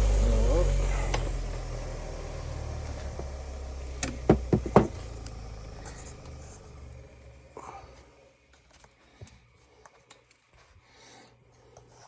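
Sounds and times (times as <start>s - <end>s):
electric motor humming: 0.0s - 3.9s
sharp knocks: 4.2s - 5.0s.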